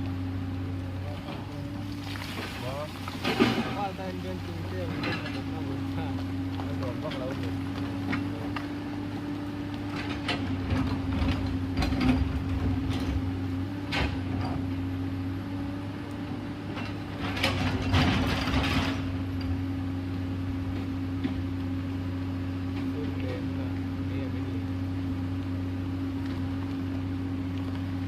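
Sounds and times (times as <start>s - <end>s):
excavator engine running: 0.0s - 28.0s
machine clanks and rattles: 2.8s - 6.1s, 9.9s - 14.6s, 16.7s - 19.6s.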